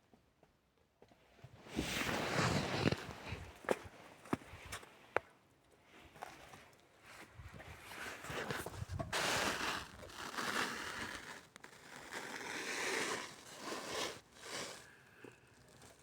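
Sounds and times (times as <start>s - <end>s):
rustling and crunching handling: 1.5s - 5.1s, 6.0s - 16.0s.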